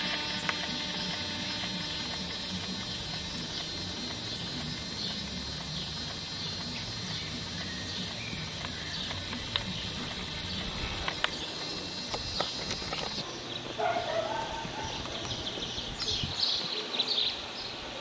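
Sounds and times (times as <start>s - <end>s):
sharp clicks: 0.0s - 13.2s
steady background hiss: 0.0s - 18.0s
bird chirping: 0.4s - 17.8s.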